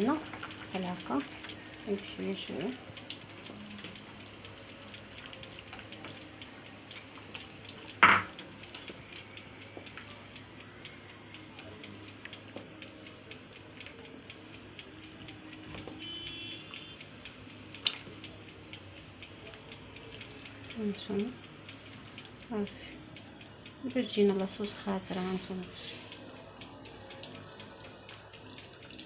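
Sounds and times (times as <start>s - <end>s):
utensil stirring soup in pot: 0.0s - 23.7s, 24.3s - 29.0s
utensil clinking against pot: 8.0s - 8.5s.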